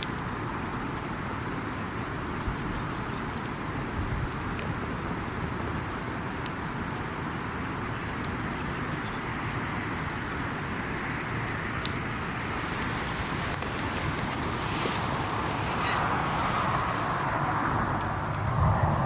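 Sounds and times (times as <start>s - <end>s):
campfire crackling and popping: 0.0s - 19.0s
steady rushing noise: 11.1s - 19.0s.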